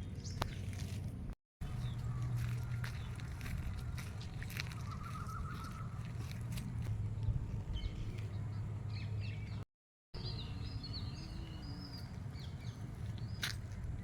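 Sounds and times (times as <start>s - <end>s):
steady low rumble: 0.0s - 9.6s
small birds chirping: 1.6s - 9.6s, 10.2s - 14.0s.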